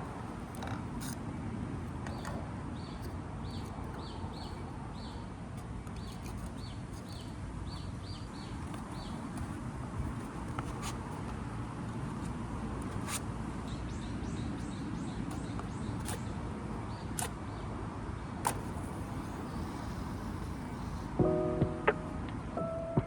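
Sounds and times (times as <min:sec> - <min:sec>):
small bird chirping: 0:02.0 - 0:09.6.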